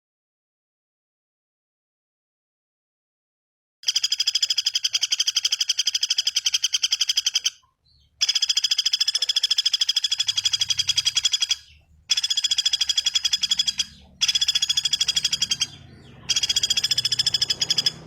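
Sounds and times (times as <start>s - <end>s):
small bird trilling: 4.2s - 18.0s.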